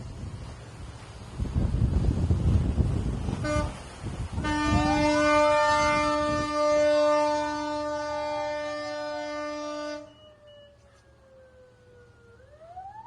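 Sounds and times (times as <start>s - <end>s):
boat engine rumble: 0.0s - 13.0s
wind: 0.0s - 13.0s
ship horn: 2.9s - 11.0s
siren rising and falling: 10.0s - 13.0s.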